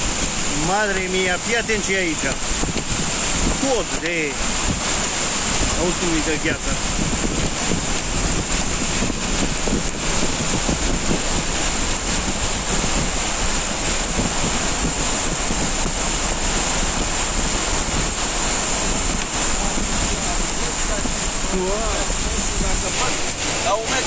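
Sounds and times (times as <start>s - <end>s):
hail falling hard: 0.0s - 24.0s.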